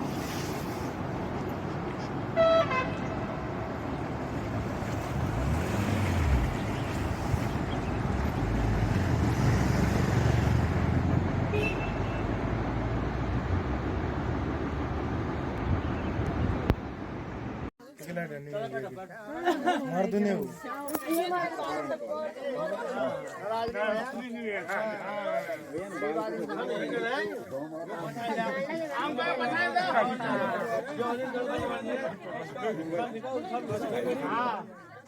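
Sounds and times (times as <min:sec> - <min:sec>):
vehicle engine rumbling past: 0:00.0 - 0:17.7
short horn toot: 0:02.3 - 0:03.1, 0:11.5 - 0:12.4.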